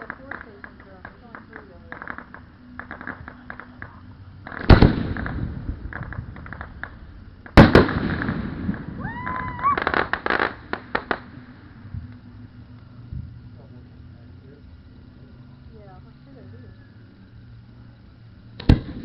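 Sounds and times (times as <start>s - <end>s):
crackling pops: 0.0s - 13.3s, 18.5s - 19.0s
firework whistle: 7.6s - 11.4s.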